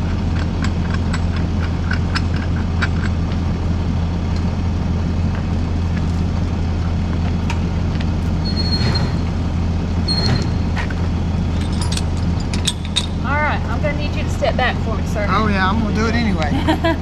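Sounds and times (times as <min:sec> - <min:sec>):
diesel engine idling: 0:00.0 - 0:17.0
high squeaks: 0:08.3 - 0:09.4, 0:10.0 - 0:11.0.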